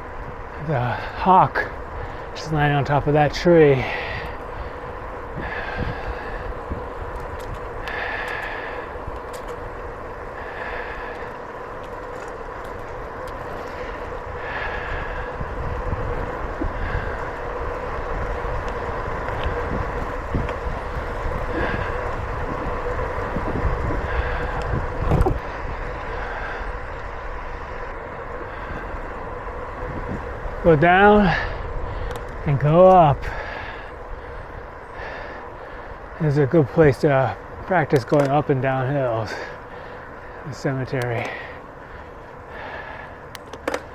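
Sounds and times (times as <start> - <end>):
bicycle tyre rumble: 0.0 - 43.9
faint steady hum: 0.0 - 43.9
wind buffeting microphone: 0.0 - 43.9.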